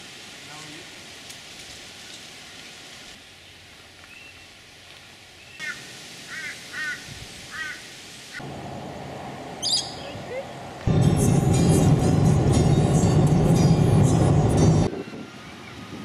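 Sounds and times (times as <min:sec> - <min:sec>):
bird calling: 0:04.0 - 0:04.5, 0:05.4 - 0:08.4, 0:09.6 - 0:10.6.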